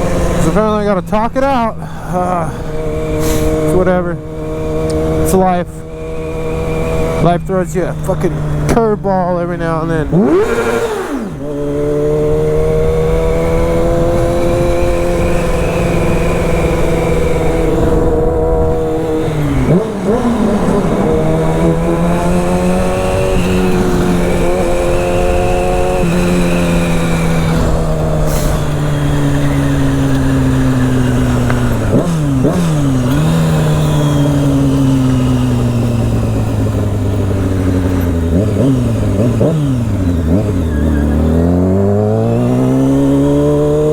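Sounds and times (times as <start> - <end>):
motorcycle engine revving: 0.0 - 43.9
wind rushing: 12.2 - 33.4.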